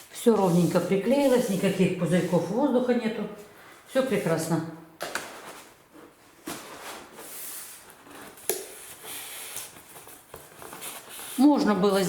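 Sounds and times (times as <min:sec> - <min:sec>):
vinyl film rustling and rubbing: 0:00.0 - 0:02.6, 0:05.3 - 0:12.0.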